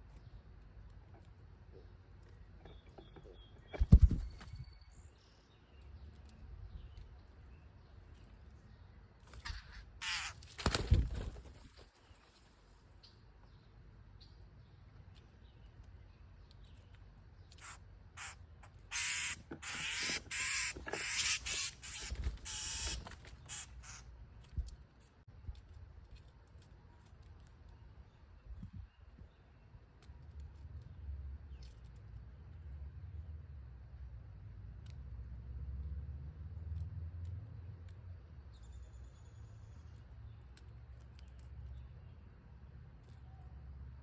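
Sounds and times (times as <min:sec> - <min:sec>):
faint high bird chirps: 0:02.6 - 0:12.4
bird harsh raspy calls: 0:09.3 - 0:10.8, 0:17.5 - 0:24.1.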